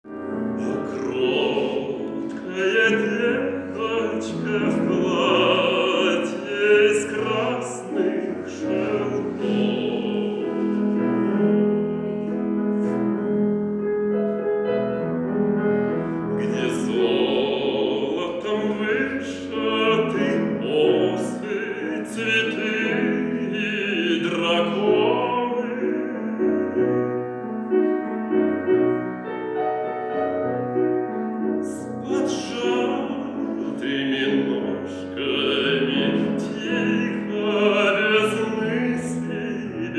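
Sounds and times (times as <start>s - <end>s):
man singing operatically: 0.0s - 11.8s, 16.3s - 27.4s, 31.6s - 39.9s
piano accompaniment: 0.0s - 39.9s.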